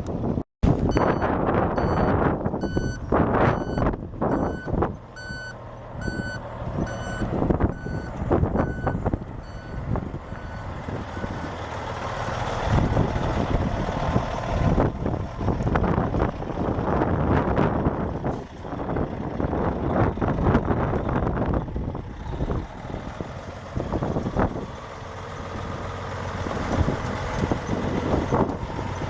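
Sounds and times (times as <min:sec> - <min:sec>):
wind noise on microphone: 0:00.0 - 0:29.0
dump truck running: 0:00.1 - 0:29.0
reversing beeper: 0:00.9 - 0:11.5.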